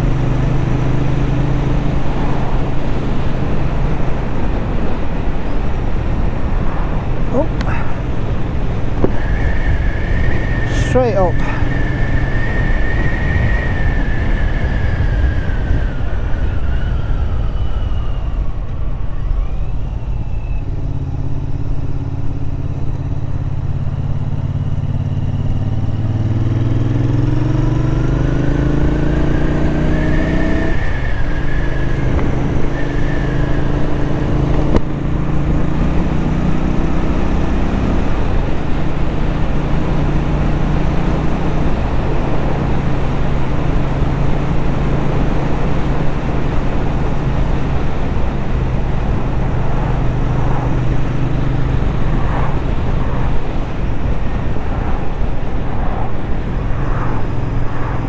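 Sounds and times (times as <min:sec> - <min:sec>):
wind rush: 0:00.0 - 0:58.0.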